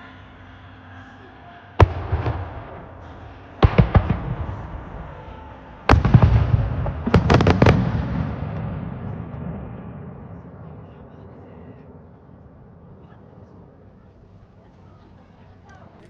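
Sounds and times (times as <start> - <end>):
fireworks bangs echoing: 1.7 - 11.0
fireworks crackling: 1.8 - 11.0.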